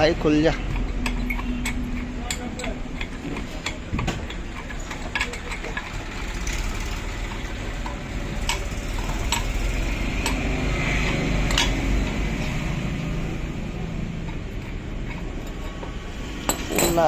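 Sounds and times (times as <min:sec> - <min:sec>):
sharp metallic clicks: 0:00.0 - 0:12.7
vehicle engine rumbling: 0:00.0 - 0:17.0.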